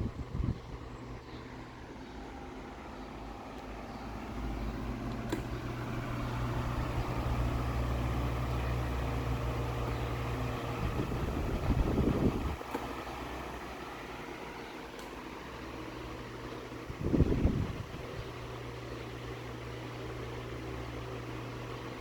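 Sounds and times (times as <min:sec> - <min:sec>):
desk fan running: 0:00.0 - 0:22.0
click: 0:05.1 - 0:05.6, 0:12.7 - 0:12.9, 0:15.0 - 0:15.2.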